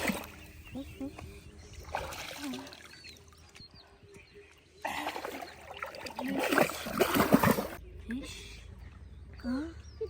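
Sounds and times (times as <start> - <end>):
shallow water splashing: 4.9 - 7.8.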